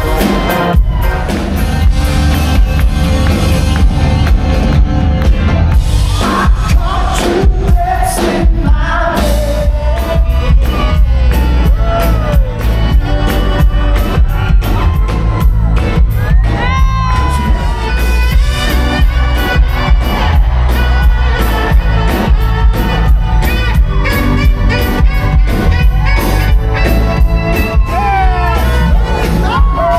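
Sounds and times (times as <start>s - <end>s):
live rock band playing: 0.0s - 29.9s
male lead vocal: 6.1s - 12.6s.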